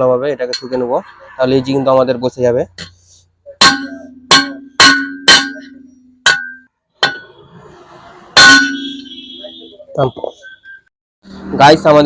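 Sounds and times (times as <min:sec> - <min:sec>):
metal-on-metal knocks: 0:03.6 - 0:07.4, 0:08.4 - 0:09.0.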